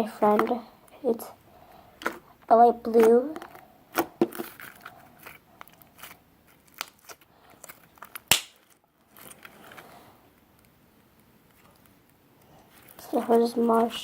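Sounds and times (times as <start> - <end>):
slime clicking and crackling: 5.3 - 7.2, 8.1 - 8.7.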